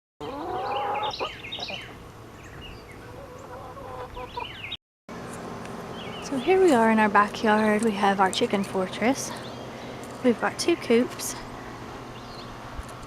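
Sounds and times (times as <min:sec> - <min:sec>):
chickens clucking: 0:00.2 - 0:02.1, 0:02.9 - 0:04.7.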